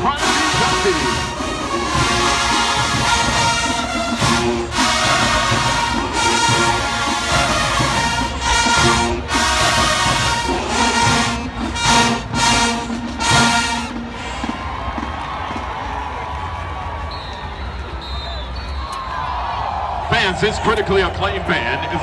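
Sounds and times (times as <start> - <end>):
marching band playing brass music: 0.0 - 16.3.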